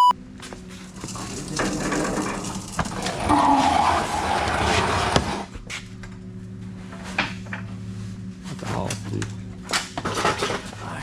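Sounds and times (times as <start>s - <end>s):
floor jack scraping on concrete: 1.0s - 5.5s.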